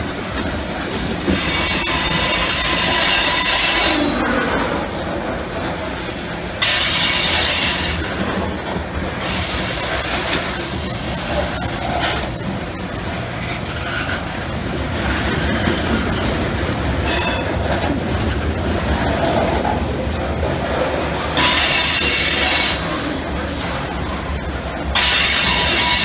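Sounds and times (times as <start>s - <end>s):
freight train wheels rumbling: 0.0s - 26.0s
high wheel squeal: 1.3s - 4.4s, 6.6s - 8.2s, 17.0s - 17.6s, 21.4s - 23.3s, 25.0s - 26.0s.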